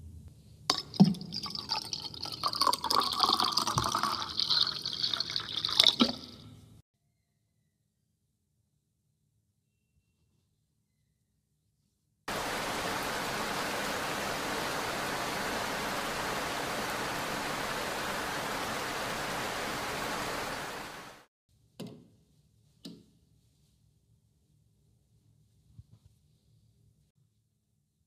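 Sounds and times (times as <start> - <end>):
heavy rain: 12.3 - 21.3.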